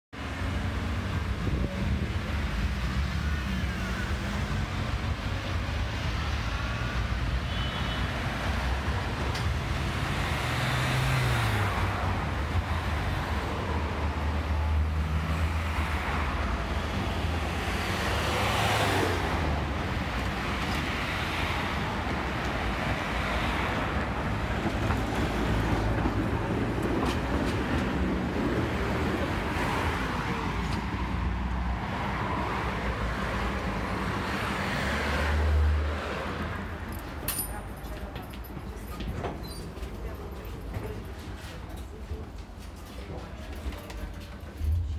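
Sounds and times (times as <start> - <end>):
passing vehicles: 0.2 - 44.9
tram running: 8.2 - 34.5, 35.9 - 44.9.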